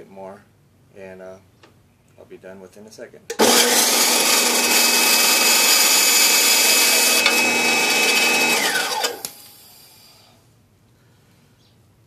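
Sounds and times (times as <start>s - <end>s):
bandsaw whining: 3.3s - 10.0s.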